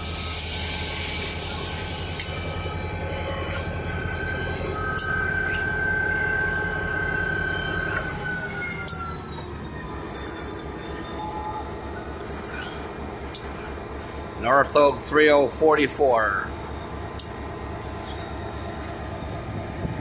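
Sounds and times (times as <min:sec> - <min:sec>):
diesel locomotive engine running: 0:00.0 - 0:20.0
high whine: 0:00.0 - 0:20.0
sharp metallic clicks: 0:17.2 - 0:18.0.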